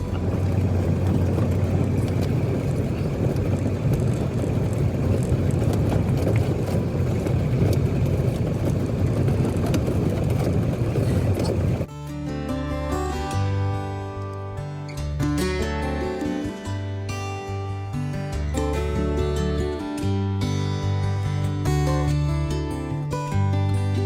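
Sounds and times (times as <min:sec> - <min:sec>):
diesel engine running: 0:00.0 - 0:11.9
acoustic guitar music: 0:00.0 - 0:24.0
rough road rumble: 0:00.0 - 0:24.0.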